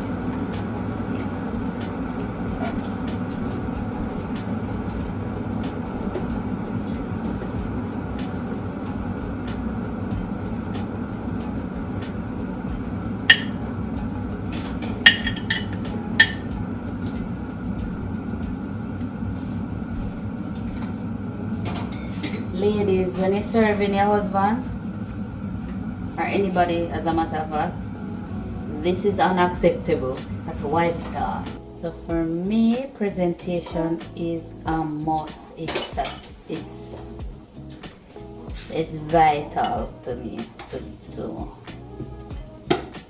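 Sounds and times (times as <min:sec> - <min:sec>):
steady low hum: 0:00.0 - 0:43.0
dishes clinking: 0:05.8 - 0:07.7, 0:13.2 - 0:13.8, 0:14.4 - 0:17.4, 0:21.6 - 0:23.4, 0:35.6 - 0:37.1.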